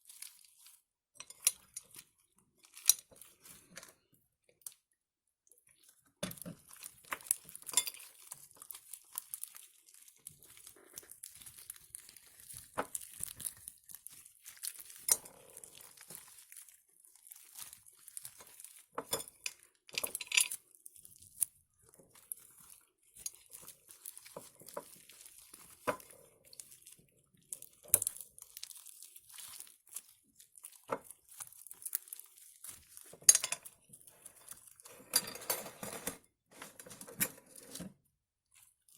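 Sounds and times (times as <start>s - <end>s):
slime crackling and popping: 5.6s - 34.8s.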